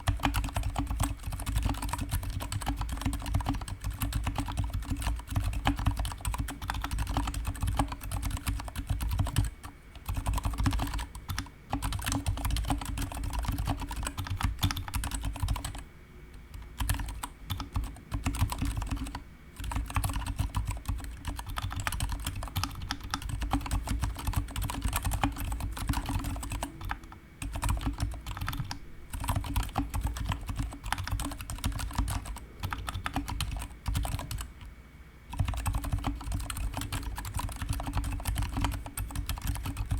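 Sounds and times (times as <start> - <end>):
typing on mechanical keyboard: 0.0 - 15.8, 16.5 - 34.6, 35.3 - 39.9.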